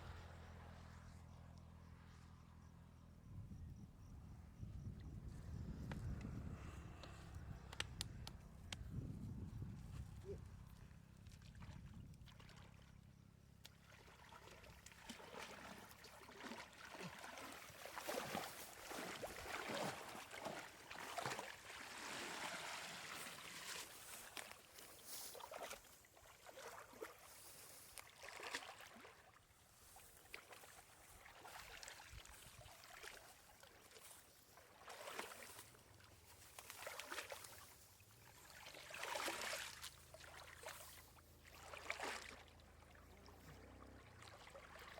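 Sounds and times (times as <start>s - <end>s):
water sloshing and splashing: 10.7s - 44.9s.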